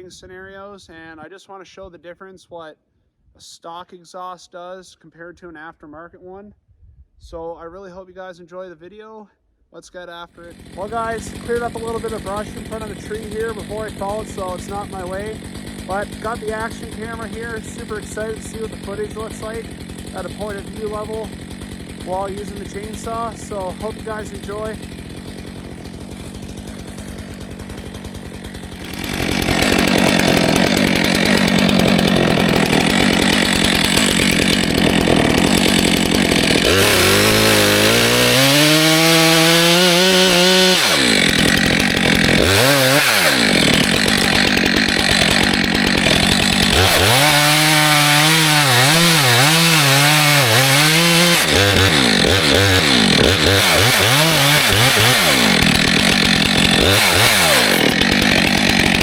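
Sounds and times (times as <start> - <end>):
chainsaw cutting wood: 10.4 - 59.0.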